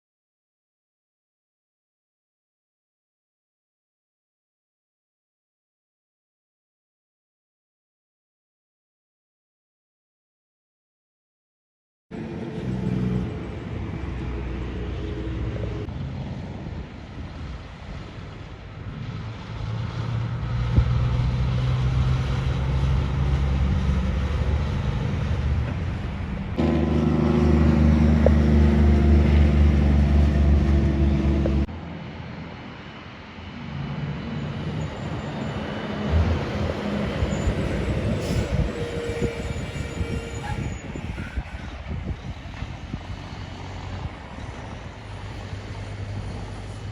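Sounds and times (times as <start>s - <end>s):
trucks driving by: 12.1s - 46.9s.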